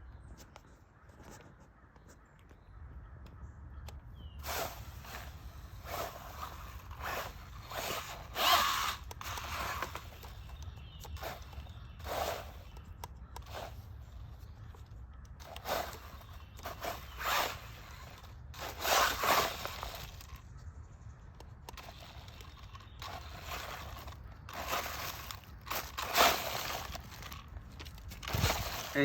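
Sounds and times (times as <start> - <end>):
scraping and crunching on leaves: 4.4 - 12.8, 15.4 - 20.5, 21.7 - 29.0.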